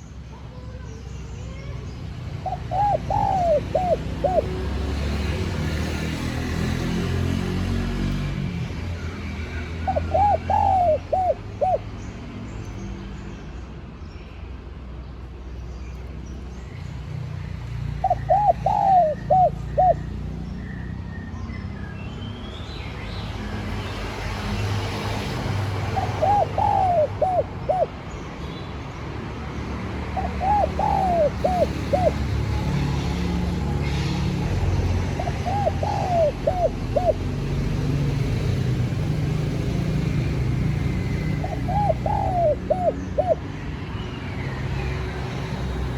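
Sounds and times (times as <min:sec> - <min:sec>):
dove cooing: 0:02.4 - 0:05.2, 0:09.8 - 0:11.8, 0:18.0 - 0:20.1, 0:25.6 - 0:28.0, 0:30.2 - 0:34.0, 0:35.0 - 0:37.6, 0:41.1 - 0:43.5.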